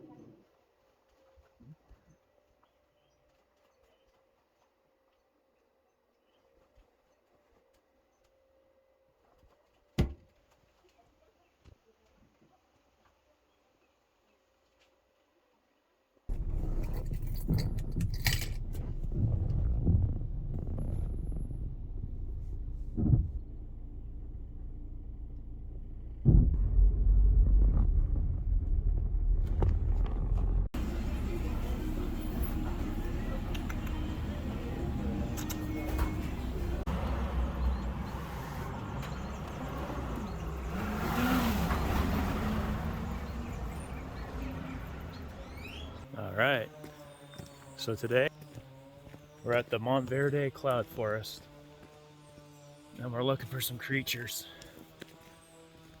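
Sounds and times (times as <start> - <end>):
rattling and jangling clicks: 16.3 - 19.2
vehicle bump: 16.3 - 46.1
car engine: 16.3 - 56.0
vehicle rumble: 16.3 - 56.0.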